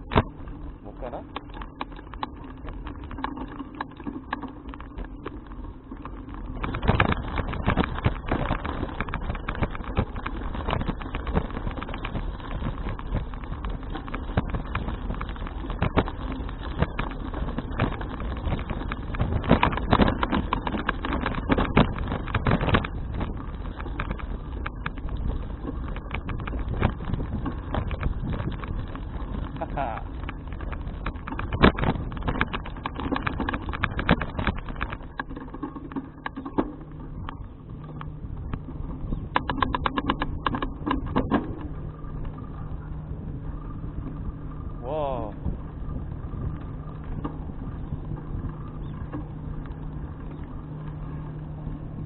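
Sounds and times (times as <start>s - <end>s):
bicycle rattling over road: 0.0s - 52.0s
wind on microphone: 4.9s - 52.0s.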